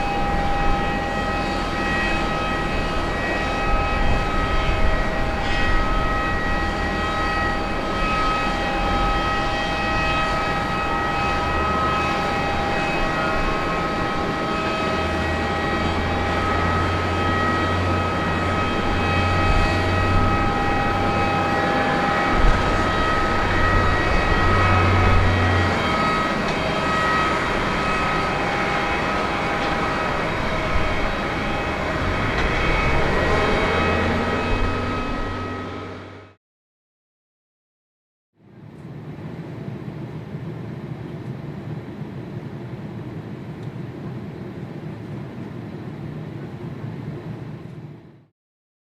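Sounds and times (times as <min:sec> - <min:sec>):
jet engines running: 0:00.0 - 0:36.4, 0:38.6 - 0:48.3
whining fan tones: 0:00.0 - 0:36.4.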